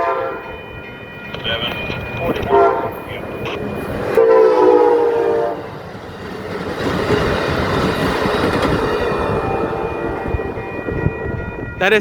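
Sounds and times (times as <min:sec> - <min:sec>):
train horn: 0:00.0 - 0:00.6, 0:01.6 - 0:03.2, 0:04.1 - 0:05.8
train wheels rolling on rails: 0:00.4 - 0:12.0.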